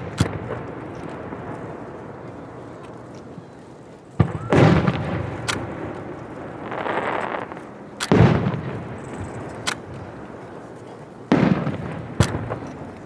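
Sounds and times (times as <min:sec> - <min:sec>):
fireworks booming: 0:00.0 - 0:13.0
short crack: 0:05.4 - 0:06.2, 0:09.3 - 0:10.1.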